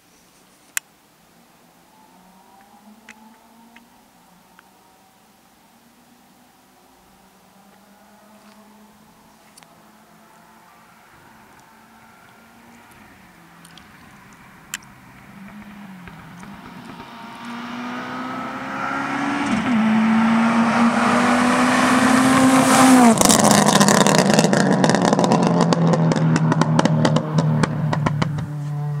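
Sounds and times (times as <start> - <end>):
car engine accelerating hard: 6.5 - 29.0.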